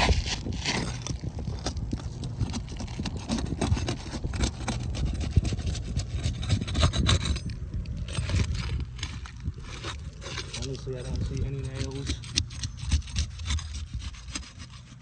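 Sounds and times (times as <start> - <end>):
low rumble: 0.0 - 14.8
flat bar scraping roof shingles: 0.0 - 15.0.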